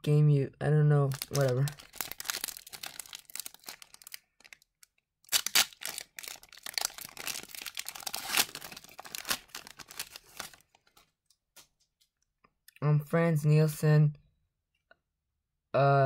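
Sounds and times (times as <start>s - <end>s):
wrapper tearing and crinkling: 1.1s - 11.0s.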